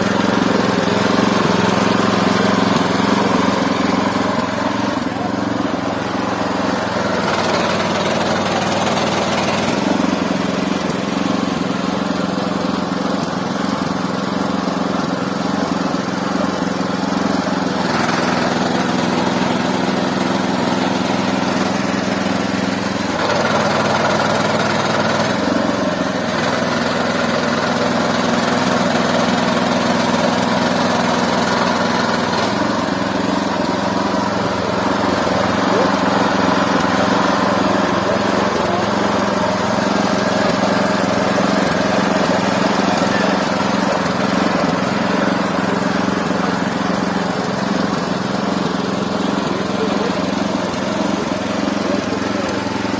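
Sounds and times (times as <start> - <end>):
sawmill engine running: 0.0 - 52.9.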